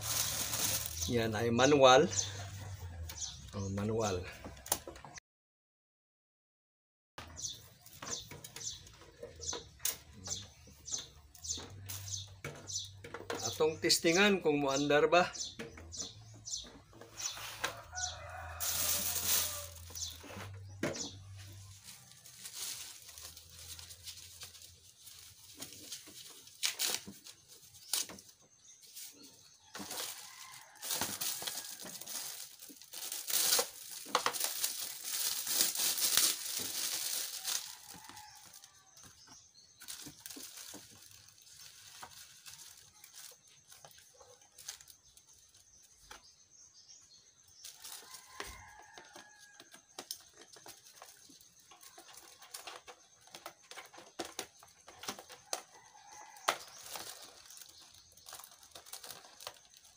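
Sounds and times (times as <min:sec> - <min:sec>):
plastic wrapping crinkling: 0:00.0 - 0:02.1, 0:17.2 - 0:46.1, 0:47.6 - 0:59.9.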